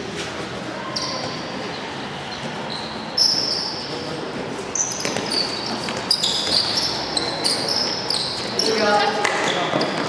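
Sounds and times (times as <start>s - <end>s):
voices in a hall: 0.0s - 10.0s
shoes squeaking on court floor: 0.8s - 10.0s.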